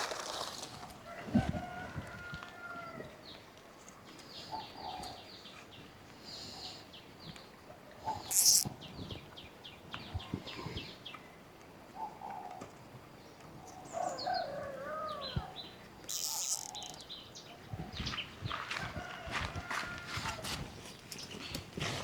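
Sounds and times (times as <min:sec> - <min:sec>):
birds chirping: 0:08.1 - 0:09.5, 0:13.7 - 0:18.6.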